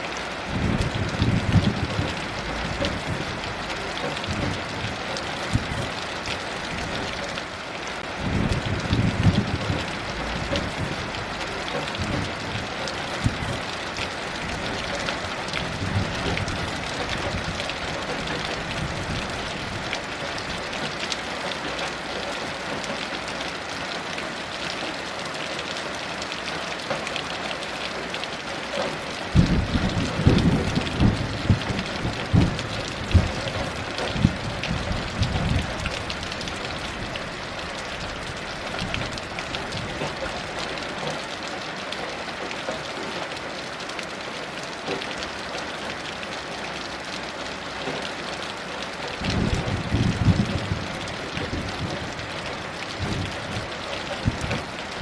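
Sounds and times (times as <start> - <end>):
heavy rain falling: 0.0 - 55.0
thunder rumble: 0.5 - 6.0, 8.2 - 13.6, 29.3 - 40.6, 49.2 - 54.7.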